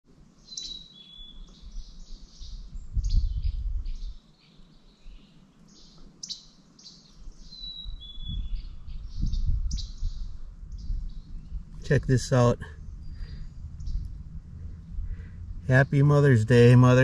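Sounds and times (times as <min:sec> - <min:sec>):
songbirds singing and chirping: 0:00.2 - 0:17.0
low rumble: 0:09.1 - 0:17.0.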